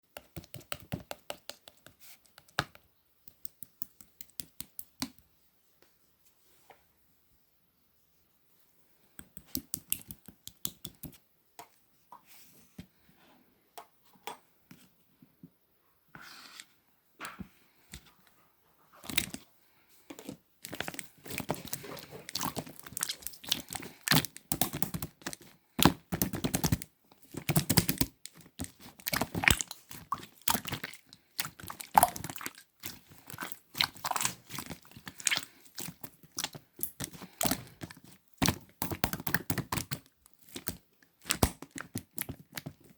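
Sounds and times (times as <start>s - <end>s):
slime squished by hand: 20.6s - 42.9s.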